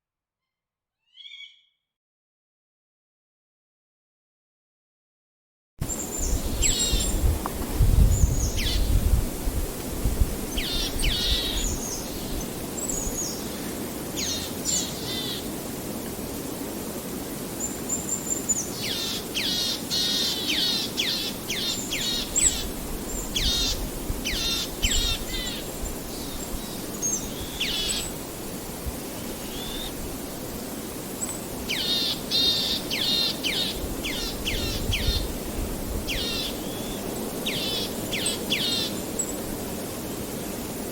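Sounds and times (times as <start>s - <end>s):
steady background hiss: 5.8s - 40.9s
birds chirping: 31.2s - 35.3s.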